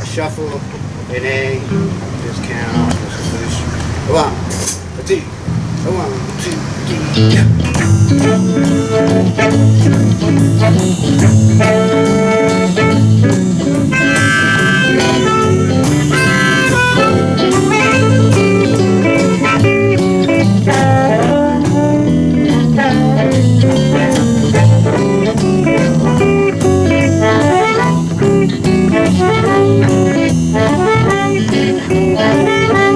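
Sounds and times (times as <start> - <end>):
live blues band playing: 1.6 - 32.9
saxophone: 7.0 - 32.9
harmonica: 7.4 - 32.9.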